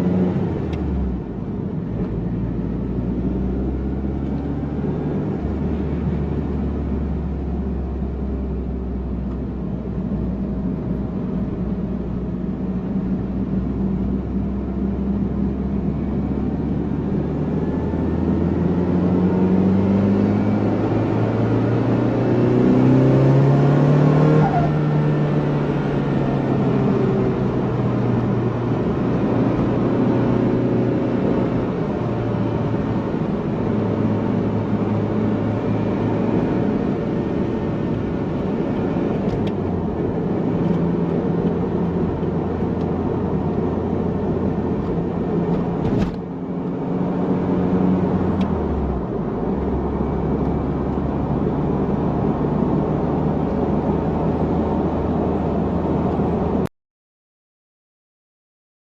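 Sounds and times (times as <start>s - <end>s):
car engine revving: 14.7s - 56.6s.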